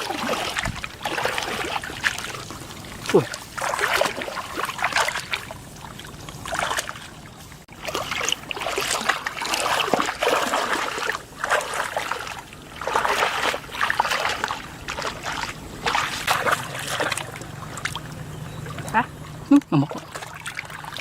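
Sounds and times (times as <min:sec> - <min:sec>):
shallow water splashing: 0:00.0 - 0:21.0.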